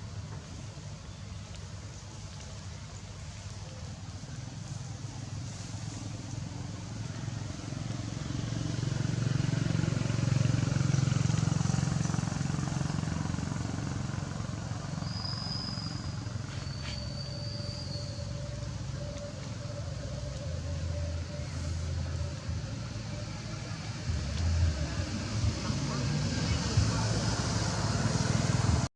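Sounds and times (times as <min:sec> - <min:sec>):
motor vehicle passing: 0:04.4 - 0:28.9
high thin whistle-like tones: 0:15.0 - 0:22.3.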